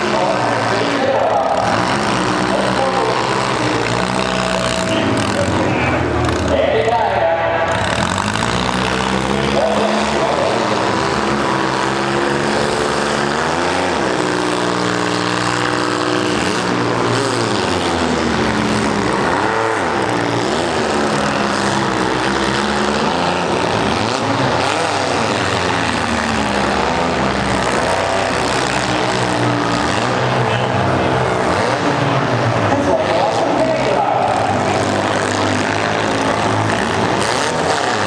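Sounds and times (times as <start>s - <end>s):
car engines revving: 0.0s - 38.0s.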